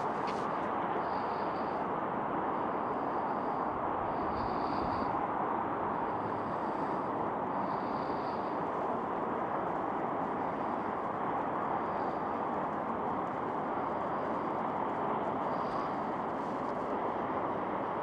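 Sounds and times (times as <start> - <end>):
distant highway traffic hum: 0.0 - 18.0.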